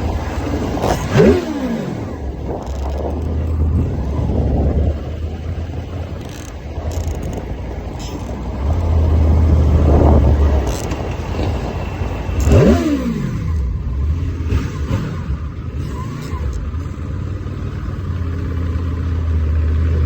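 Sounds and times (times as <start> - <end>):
dirt bike engine revving: 0.0 - 5.0, 8.0 - 16.6.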